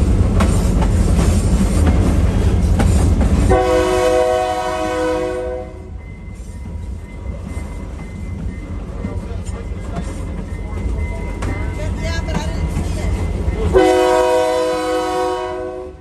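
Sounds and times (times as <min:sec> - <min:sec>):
train wheels rumbling and clattering: 0:00.0 - 0:16.0
train horn: 0:03.5 - 0:06.0, 0:13.7 - 0:16.0.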